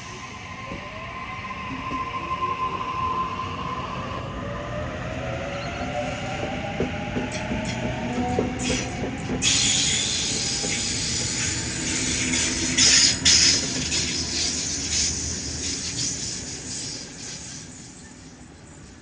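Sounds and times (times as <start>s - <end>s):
train wheels rushing on rails: 4.4s - 19.0s.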